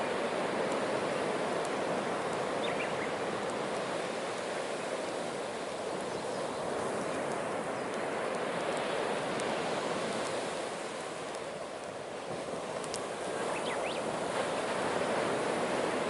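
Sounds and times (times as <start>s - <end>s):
sea waves on shore: 0.0s - 16.0s
faint sharp crackles: 0.1s - 14.8s.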